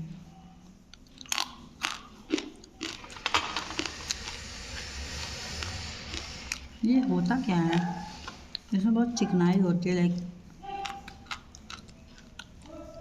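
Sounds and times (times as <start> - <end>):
person crunching and chewing: 0.9 - 8.7, 10.2 - 13.0.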